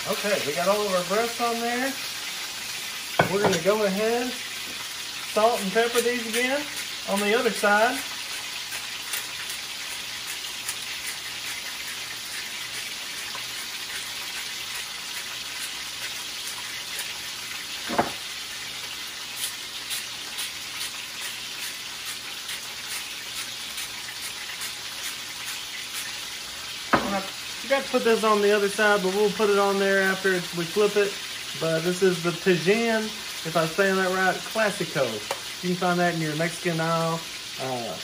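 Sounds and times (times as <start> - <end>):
meat sizzling in hot oil: 0.0 - 38.0
knock: 17.9 - 18.2.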